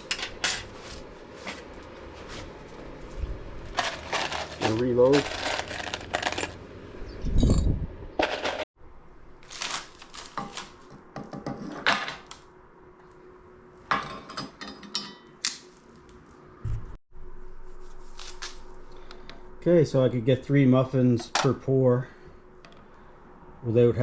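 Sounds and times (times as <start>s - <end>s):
metal scrap clinking and rattling: 3.8s - 6.6s
heavy low thump: 16.6s - 17.0s.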